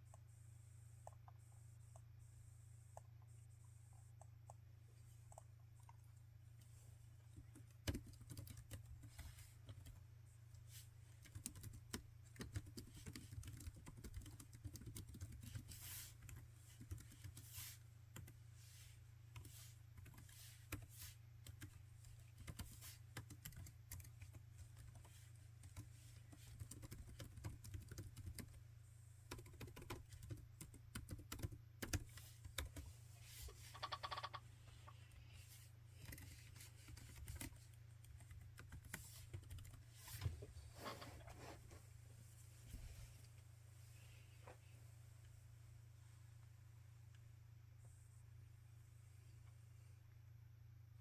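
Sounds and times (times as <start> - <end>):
low steady hum: 0.0 - 51.0
laptop keyboard typing: 7.4 - 10.0, 11.2 - 18.4, 19.4 - 28.6, 29.3 - 32.8, 33.7 - 34.4, 36.0 - 39.8.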